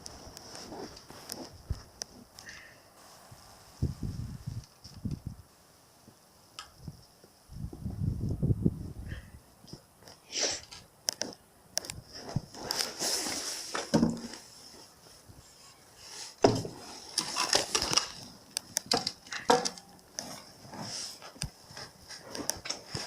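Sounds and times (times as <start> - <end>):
small hard parts clicking and knocking: 16.4 - 20.6.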